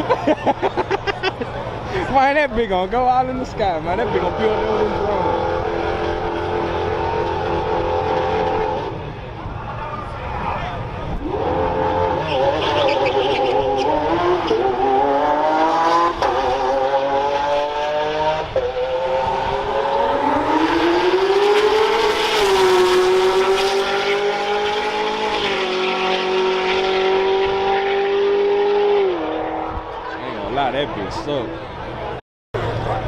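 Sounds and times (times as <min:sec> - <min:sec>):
dirt bike engines at full throttle: 0:03.2 - 0:33.0.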